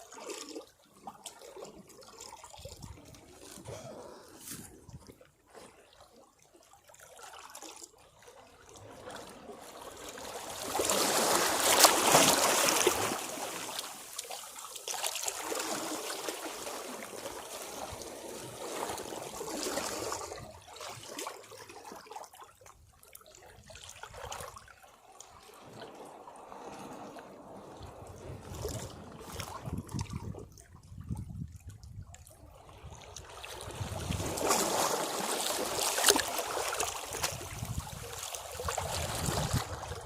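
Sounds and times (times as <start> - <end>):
sea waves washing against rocks: 10.1 - 14.2, 33.6 - 40.0.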